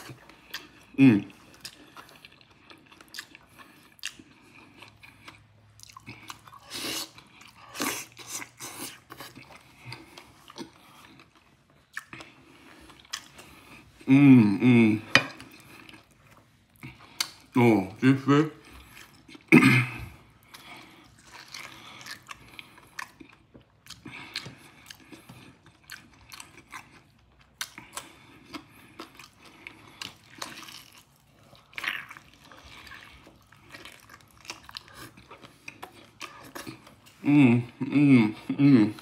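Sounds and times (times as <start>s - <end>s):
wet chewing and lip-smacking: 0.0s - 13.8s, 20.4s - 37.2s.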